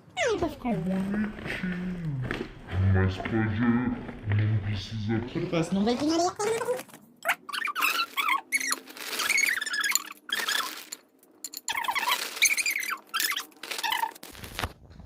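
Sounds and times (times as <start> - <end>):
short high squeaks: 7.2 - 11.0, 11.7 - 14.2
plastic packaging crinkling: 8.2 - 11.0, 11.8 - 14.8.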